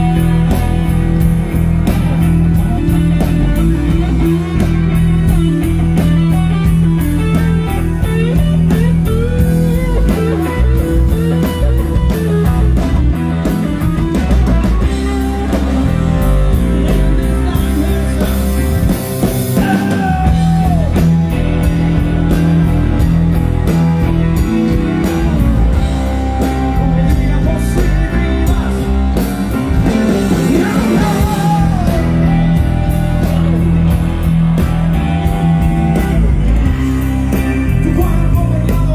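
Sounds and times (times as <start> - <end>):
drum kit: 0.0 - 38.9
electric bass: 0.0 - 38.9
electric guitar: 0.0 - 38.9
person singing: 15.0 - 21.1, 25.5 - 32.8.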